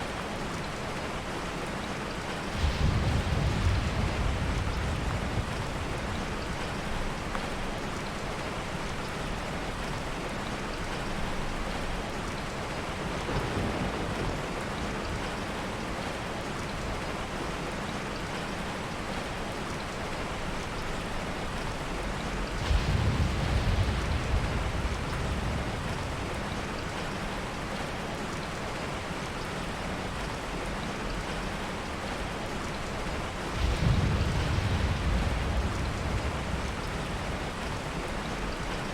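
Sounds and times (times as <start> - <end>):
heavy rain falling: 0.0 - 38.9
distant thunder rumbling: 2.5 - 7.7, 13.0 - 15.4, 22.3 - 27.9, 33.0 - 38.9.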